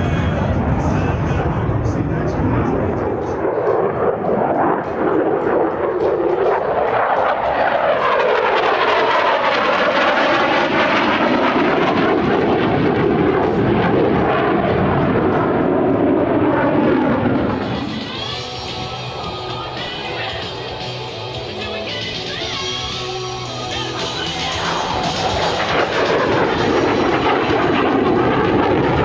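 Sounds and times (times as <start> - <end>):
fighter jet flying past: 0.0 - 29.0.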